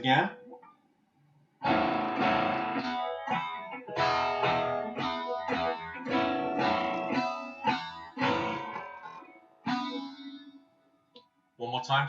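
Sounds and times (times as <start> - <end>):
guitar single-note riff: 1.6 - 10.7.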